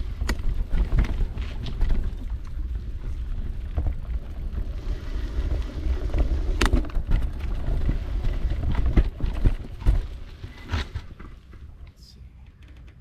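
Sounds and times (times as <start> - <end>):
bike knocks and rattles: 0.0 - 11.8
bike tyres rumbling on trail: 0.0 - 11.8.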